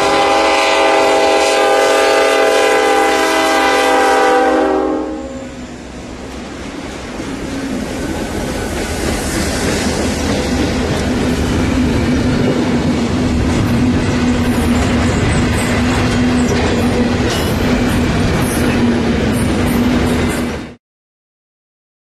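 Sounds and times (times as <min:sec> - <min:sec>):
train wheels on rails: 0:05.3 - 0:20.8.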